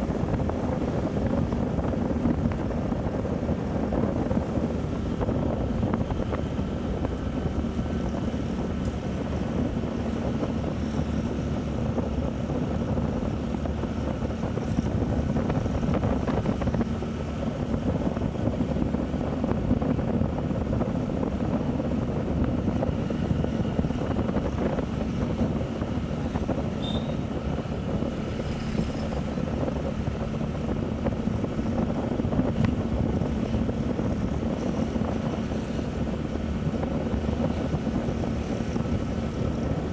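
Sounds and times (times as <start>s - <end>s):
motorcycle engine cruising: 0.0s - 39.9s
wind on microphone: 0.0s - 39.9s.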